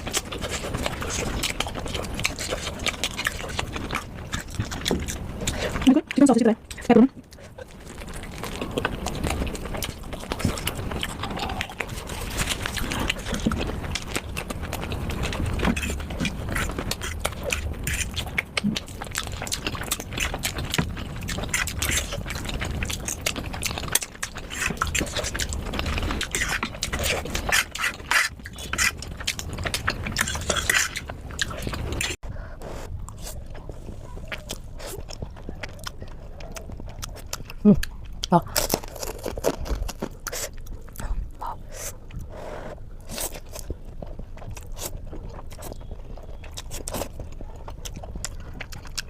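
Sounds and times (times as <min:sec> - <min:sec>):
person chewing food: 0:00.0 - 0:49.0.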